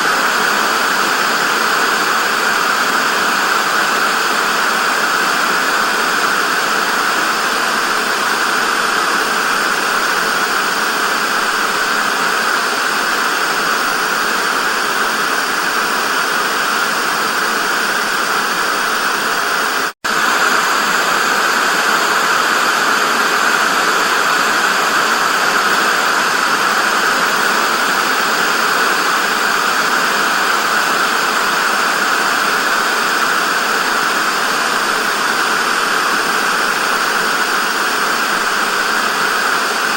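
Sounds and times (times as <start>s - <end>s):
tv static hiss: 0.0s - 39.9s.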